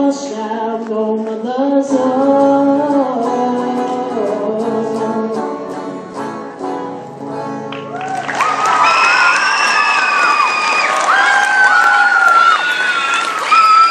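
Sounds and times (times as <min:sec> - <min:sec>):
country song instrumental: 0:00.0 - 0:08.5
audience cheering and applause: 0:07.7 - 0:13.9
shrill screams: 0:08.0 - 0:13.9.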